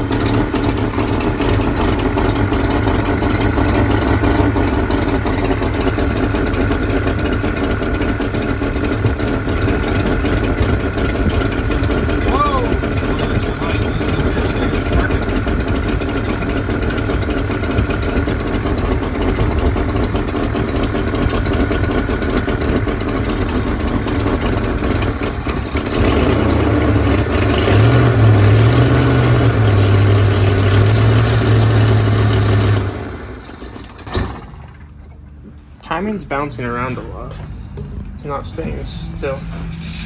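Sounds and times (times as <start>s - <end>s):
car engine idling rough and revving: 0.0s - 35.8s.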